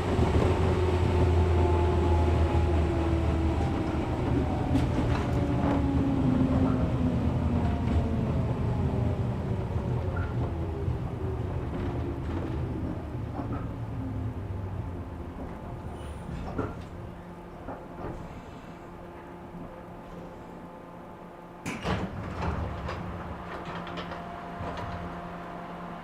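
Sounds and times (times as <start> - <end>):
train running gear rumble: 0.0 - 26.0
wheels clicking on rails: 21.6 - 25.6.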